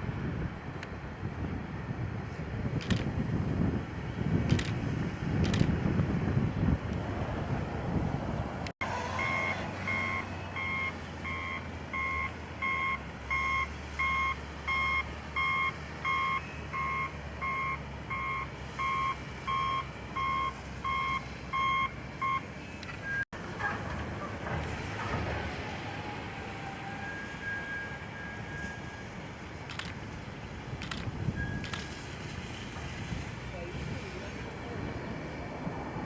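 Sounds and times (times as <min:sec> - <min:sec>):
low engine rumble: 0:00.0 - 0:36.0
vehicle backup alarm beeping: 0:08.8 - 0:23.3, 0:26.6 - 0:29.9, 0:30.8 - 0:32.0.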